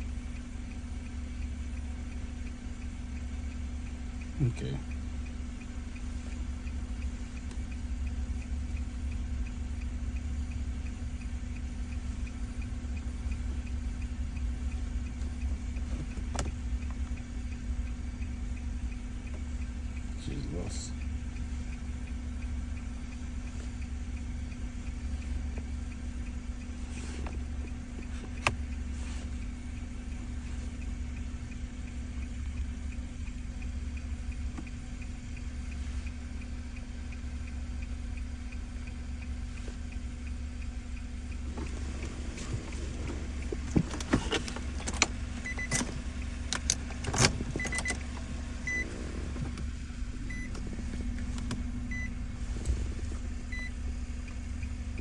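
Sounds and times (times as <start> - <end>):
car cabin low hum: 0.0 - 55.0
faint ticking: 0.0 - 55.0
sharp clicks and taps: 40.6 - 52.8
short high beeps: 51.9 - 52.2, 53.5 - 53.8.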